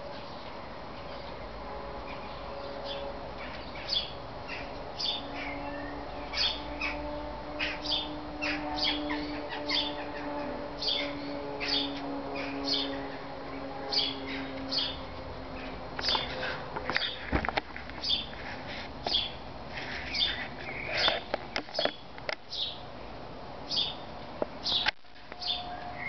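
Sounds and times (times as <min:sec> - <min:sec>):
birds chirping sharply: 0:02.1 - 0:17.4, 0:18.0 - 0:18.4, 0:19.1 - 0:22.9, 0:23.7 - 0:26.0.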